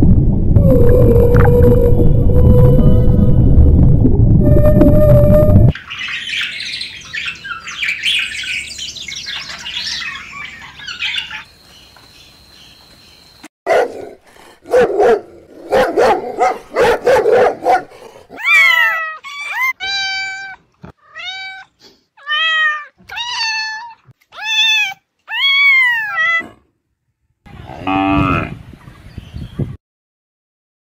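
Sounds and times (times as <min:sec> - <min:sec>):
loud low rumble: 0:00.0 - 0:05.7
puppy barking: 0:13.7 - 0:19.7
puppy yelping: 0:18.3 - 0:21.6.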